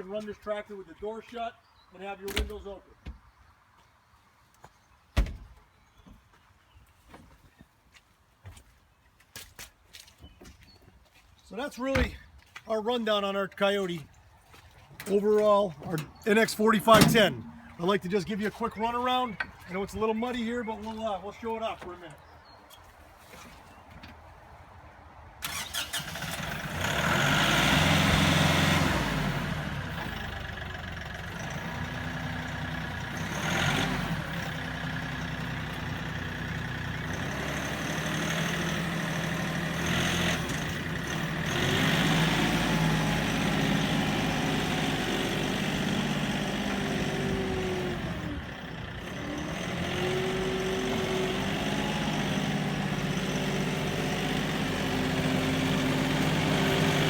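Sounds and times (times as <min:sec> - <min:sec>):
tractor diesel engine running: 0:14.9 - 0:22.2, 0:25.4 - 0:57.0.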